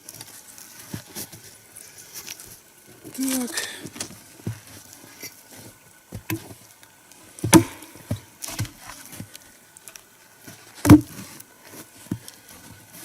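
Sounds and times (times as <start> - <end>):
axe chopping log: 7.4 - 8.7, 10.8 - 11.2.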